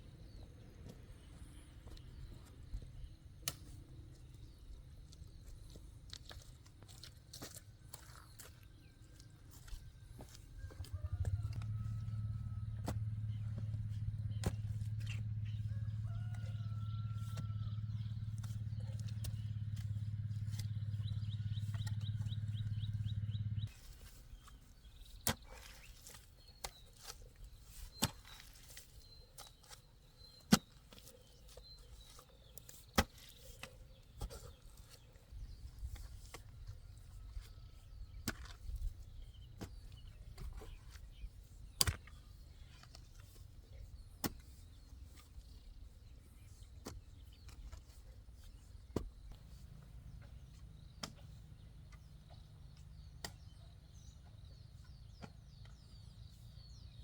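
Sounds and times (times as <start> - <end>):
low machine hum: 8.9 - 23.9.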